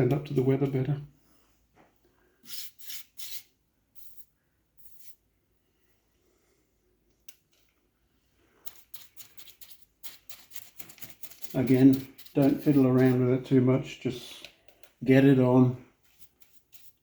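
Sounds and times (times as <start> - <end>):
paintbrush strokes: 8.5 - 14.4, 15.9 - 17.0.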